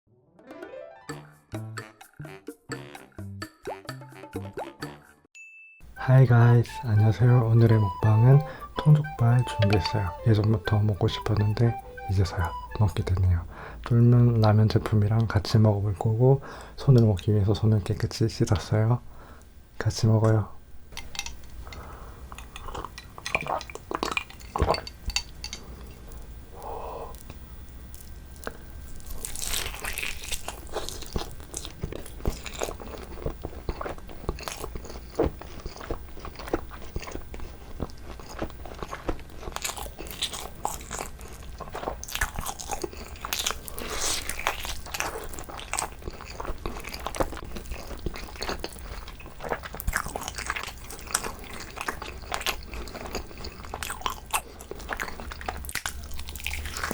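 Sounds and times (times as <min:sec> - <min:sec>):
wet sticky chewing: 0:05.9 - 0:15.4, 0:21.0 - 0:56.9.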